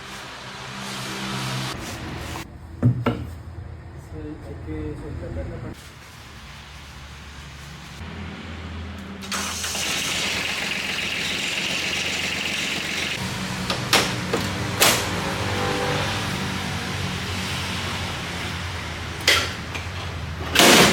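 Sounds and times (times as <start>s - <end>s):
sharp knocks: 2.8s - 3.3s.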